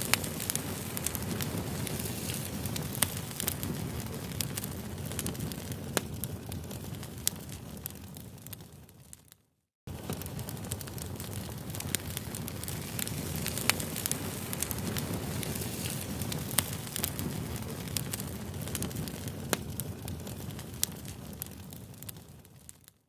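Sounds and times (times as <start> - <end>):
campfire crackling: 0.0 - 23.0
fire popping and snapping: 0.0 - 23.0.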